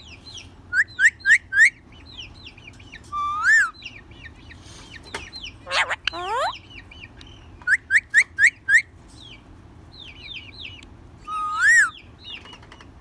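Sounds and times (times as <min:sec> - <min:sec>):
parrot chirping: 0:03.1 - 0:03.8, 0:05.6 - 0:06.6, 0:11.3 - 0:12.0
parrot whistle: 0:03.2 - 0:03.8, 0:05.7 - 0:06.6, 0:11.3 - 0:11.9.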